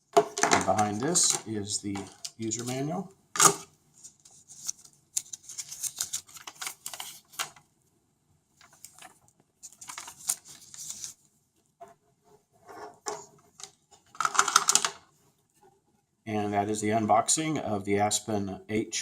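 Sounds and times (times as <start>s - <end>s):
packaging clicking and rustling: 4.7s - 7.6s, 13.1s - 15.0s.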